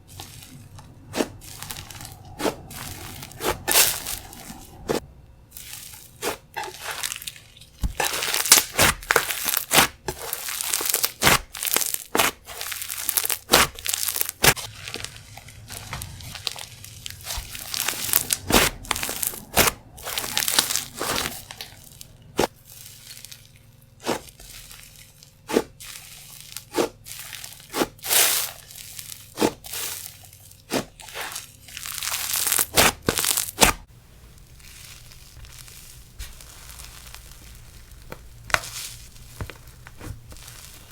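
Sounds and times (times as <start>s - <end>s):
slime crackling and popping: 0.0s - 40.9s.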